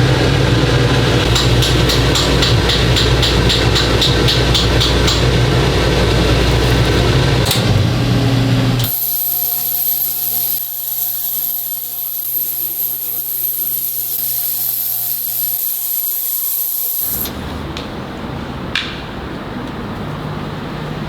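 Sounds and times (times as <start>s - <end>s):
motor with high whine: 0.0s - 17.6s
power tool humming and ticking: 0.0s - 17.6s.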